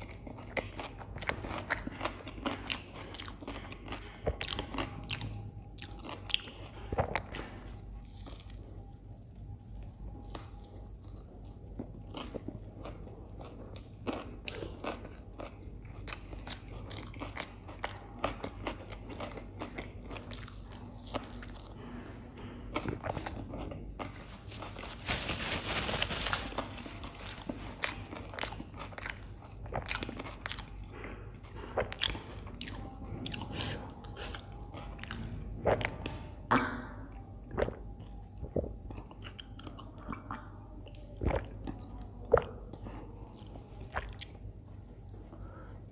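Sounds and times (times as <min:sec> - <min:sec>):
chewing toasted sandwich: 0:00.0 - 0:25.1, 0:26.2 - 0:36.4, 0:37.1 - 0:45.7
wet mouth sounds: 0:27.6 - 0:44.4.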